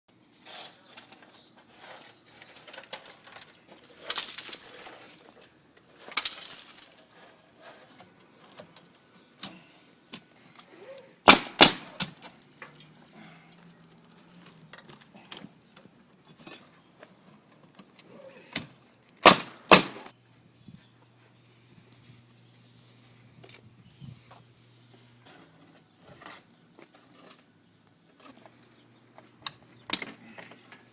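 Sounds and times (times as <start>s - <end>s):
roofing material scraping: 0.4s - 8.6s.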